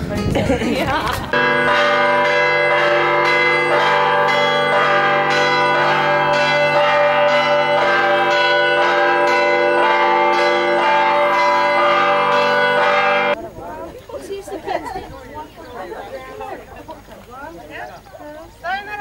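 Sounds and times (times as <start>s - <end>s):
church bells pealing: 1.3s - 13.4s.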